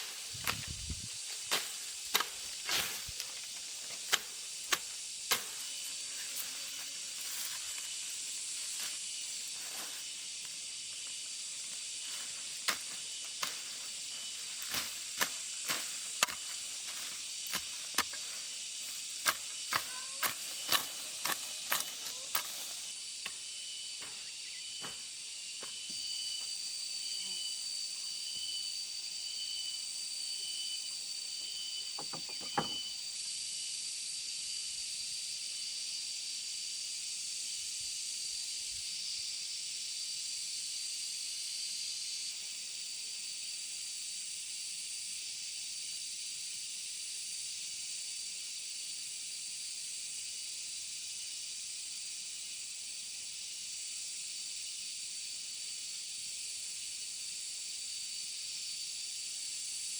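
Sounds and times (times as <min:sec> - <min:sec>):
insects chorus with pulsing trill: 0:00.0 - 0:59.9
sharp irregular knocks: 0:32.0 - 0:32.8.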